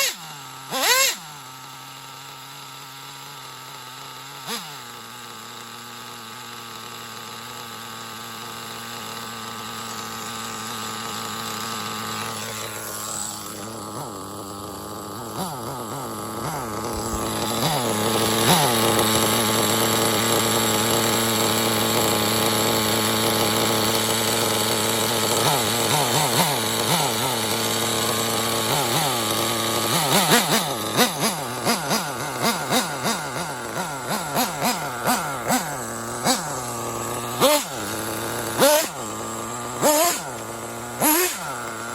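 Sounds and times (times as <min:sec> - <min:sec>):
short sharp engine blips: 0:00.0 - 0:01.4, 0:28.8 - 0:41.9
model engine buzzing: 0:00.0 - 0:41.9.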